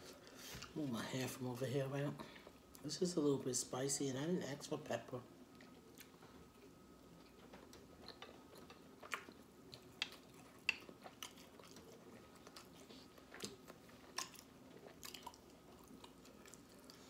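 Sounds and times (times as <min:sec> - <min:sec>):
wet chewing: 0:05.5 - 0:17.0.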